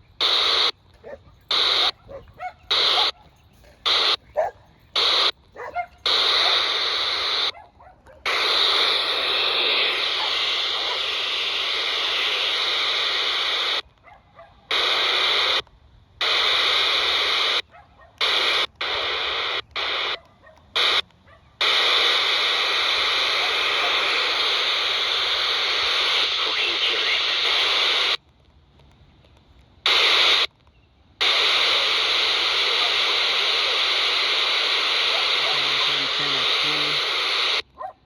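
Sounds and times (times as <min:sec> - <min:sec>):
radio static bursts: 0:00.0 - 0:04.4, 0:05.0 - 0:07.6, 0:08.2 - 0:13.8, 0:14.7 - 0:28.2, 0:29.8 - 0:30.5, 0:31.2 - 0:37.7
faint warbling radio signal: 0:00.2 - 0:07.6, 0:08.2 - 0:13.8, 0:21.6 - 0:28.2, 0:31.2 - 0:37.6.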